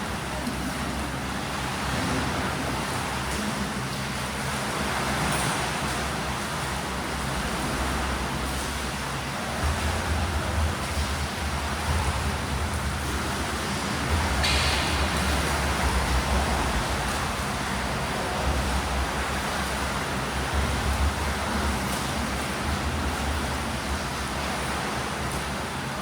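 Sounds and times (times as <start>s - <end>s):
water splashing from swimmers: 0.0s - 26.0s
low hall rumble: 5.8s - 26.0s.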